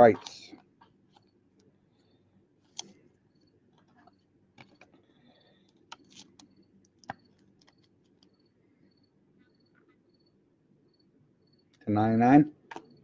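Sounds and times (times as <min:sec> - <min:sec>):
cards clicking and tapping: 0:03.8 - 0:05.0, 0:05.7 - 0:08.3.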